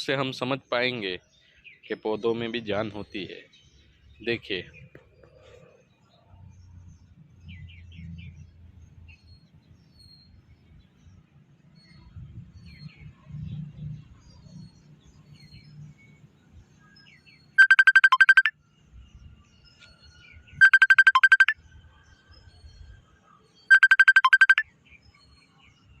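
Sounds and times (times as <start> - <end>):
trilling phone ringtone: 17.6 - 18.5, 20.6 - 21.6, 23.7 - 24.6.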